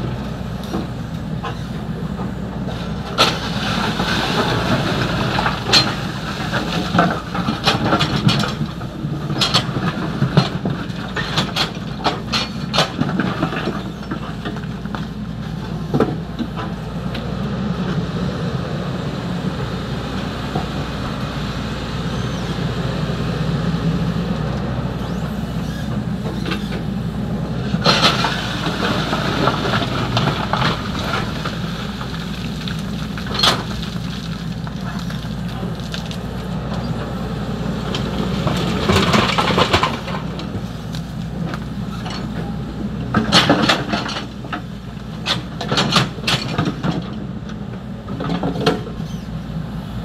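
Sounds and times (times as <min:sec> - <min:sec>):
excavator diesel engine running: 0:00.0 - 0:50.0
gravel clattering in bucket: 0:02.7 - 0:14.9, 0:27.8 - 0:36.9, 0:37.9 - 0:42.3.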